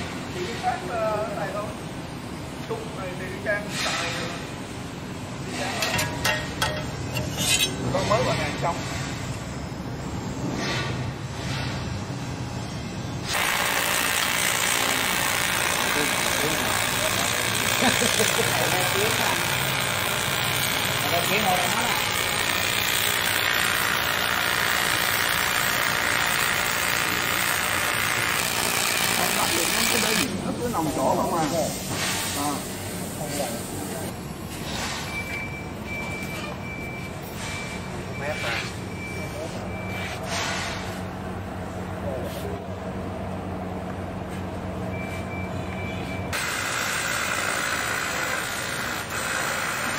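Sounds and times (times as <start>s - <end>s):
welding arc hissing: 13.2s - 30.3s, 46.4s - 49.9s.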